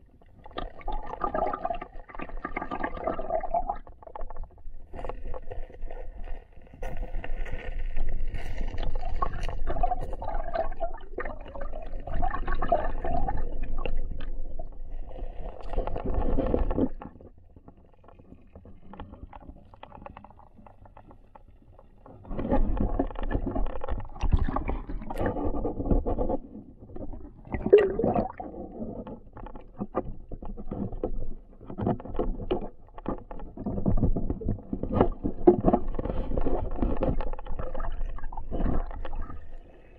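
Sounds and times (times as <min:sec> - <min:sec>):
muffled river water gurgling: 0:00.0 - 0:39.9.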